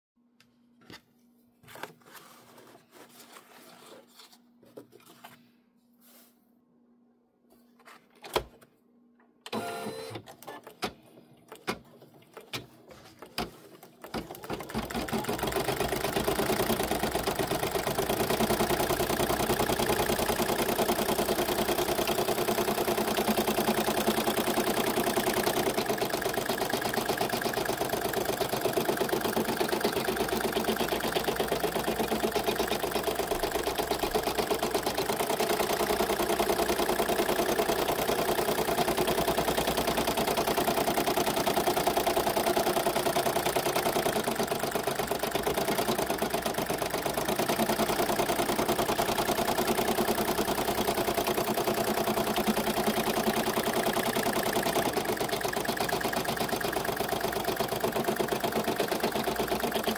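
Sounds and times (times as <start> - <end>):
embroidery machine stitching: 9.5 - 10.8, 13.3 - 59.9.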